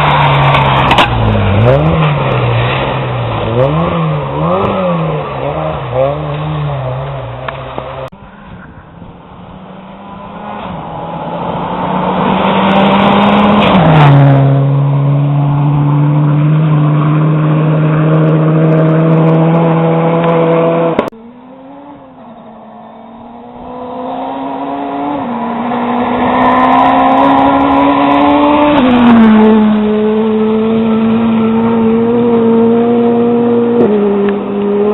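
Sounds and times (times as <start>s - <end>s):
rally cars speeding past: 0.0s - 34.9s.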